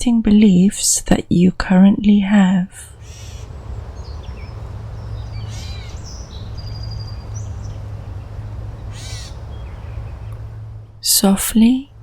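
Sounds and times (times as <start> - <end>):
birds chirping: 2.6 - 12.0
low rumble: 2.7 - 11.2.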